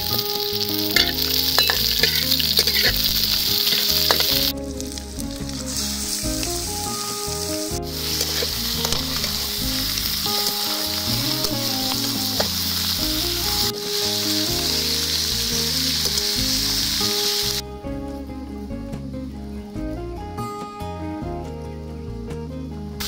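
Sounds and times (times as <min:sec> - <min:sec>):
metal spatula stirring: 0:00.0 - 0:06.7, 0:07.3 - 0:13.0
meat sizzling in a wok: 0:00.0 - 0:17.6
soft background music: 0:00.0 - 0:23.0.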